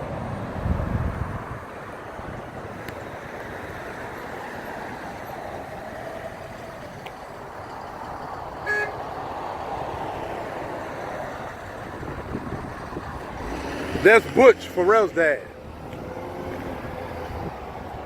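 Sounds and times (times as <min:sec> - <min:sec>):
passing road traffic: 0:00.0 - 0:18.0
short car horn toot: 0:08.6 - 0:09.0.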